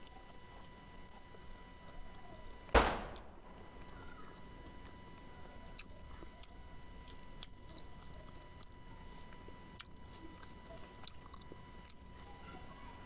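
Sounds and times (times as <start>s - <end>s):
person chewing: 5.8s - 12.3s.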